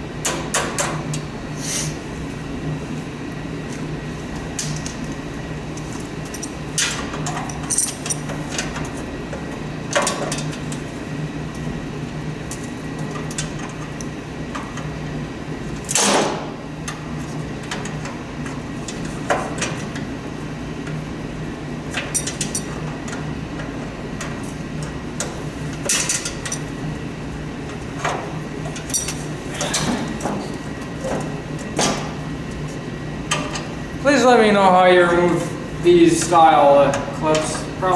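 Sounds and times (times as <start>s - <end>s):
steady low hum: 23.1s - 37.9s.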